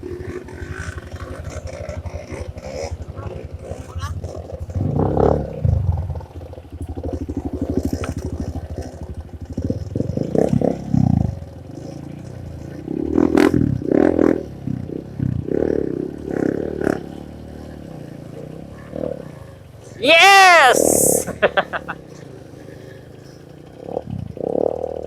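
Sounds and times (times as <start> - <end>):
dirt bike engine revving: 0.0 - 6.2, 6.8 - 19.3.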